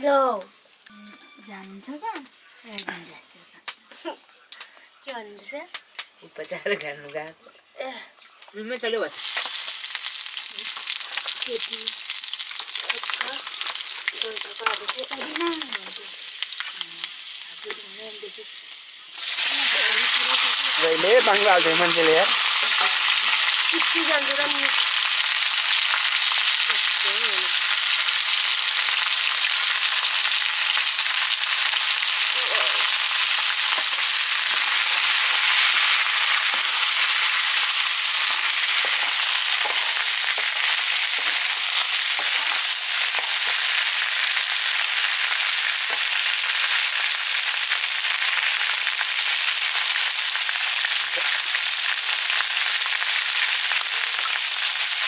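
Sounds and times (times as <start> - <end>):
squash sizzling in oil: 8.4 - 55.0
spatula stirring in wok: 33.3 - 43.9.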